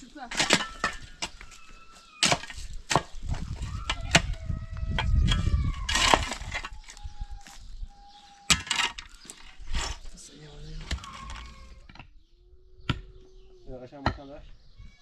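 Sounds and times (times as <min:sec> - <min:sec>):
thin animal calls: 0:03.4 - 0:13.6.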